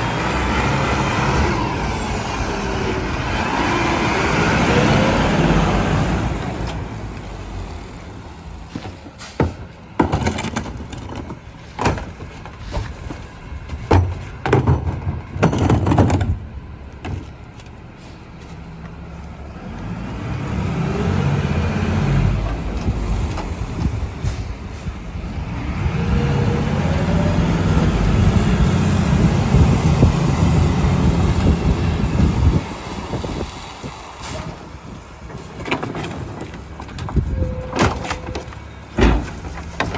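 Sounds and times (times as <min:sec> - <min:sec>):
truck engine revving: 0:00.0 - 0:08.6, 0:19.4 - 0:35.6
trash and bins clanking: 0:08.5 - 0:18.2, 0:34.2 - 0:39.9.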